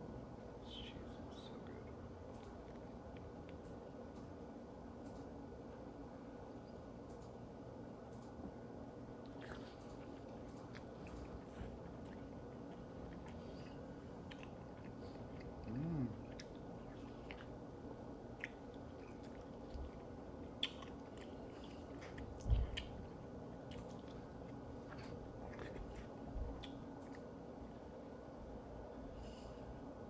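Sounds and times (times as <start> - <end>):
wet chewing: 9.2 - 27.4
person humming: 15.6 - 16.4.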